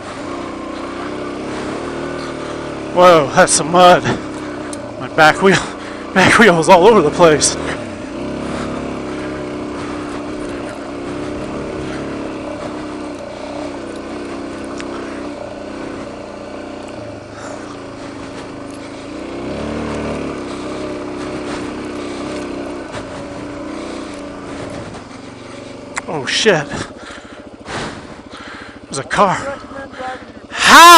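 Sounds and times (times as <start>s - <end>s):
motorcycle engine running: 0.0s - 30.9s.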